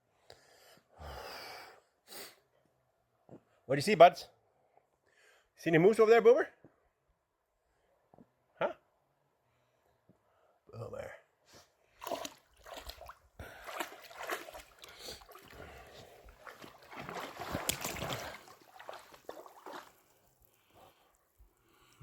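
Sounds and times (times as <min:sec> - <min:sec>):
shallow water splashing: 0:12.0 - 0:21.2.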